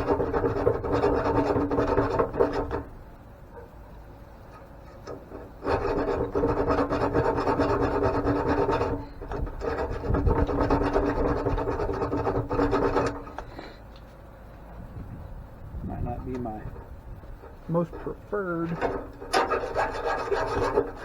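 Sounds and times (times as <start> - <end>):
rasping of metal being cut: 0.0 - 2.8, 5.1 - 13.4, 17.4 - 21.0.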